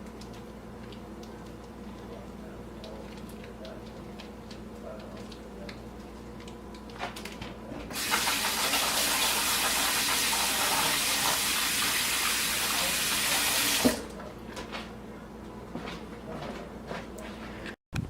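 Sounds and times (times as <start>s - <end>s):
water running hard from tap: 7.9s - 14.1s.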